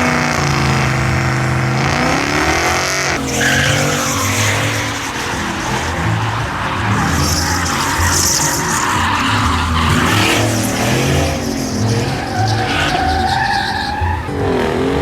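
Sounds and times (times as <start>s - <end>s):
truck engine revving: 0.0s - 15.0s
tyres squealing on pavement: 3.1s - 14.9s.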